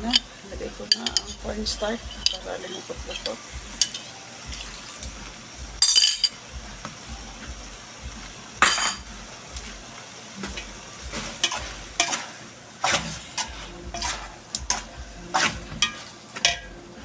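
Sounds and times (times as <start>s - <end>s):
utensil stirring sauce in pot: 11.0s - 16.8s
utensil clanking against pot: 11.4s - 16.8s.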